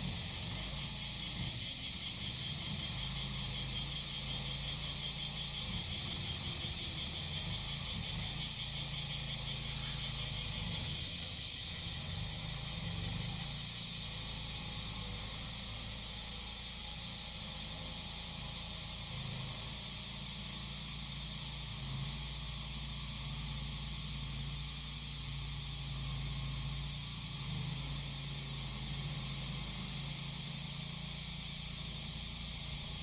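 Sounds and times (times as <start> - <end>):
grass cutter engine humming: 0.0 - 16.4
cicadas singing: 0.0 - 33.0.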